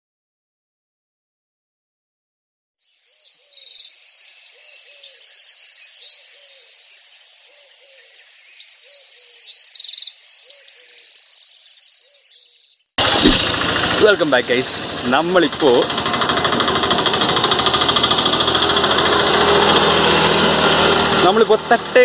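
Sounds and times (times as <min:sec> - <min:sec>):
birds singing: 0:02.8 - 0:13.0.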